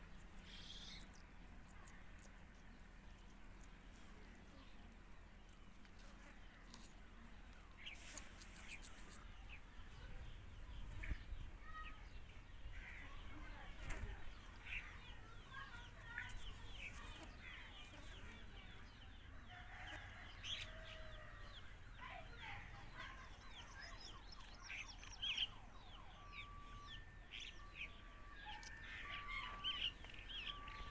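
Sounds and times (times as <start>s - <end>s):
birds chirping and squawking: 10.7s - 18.6s, 20.0s - 30.9s.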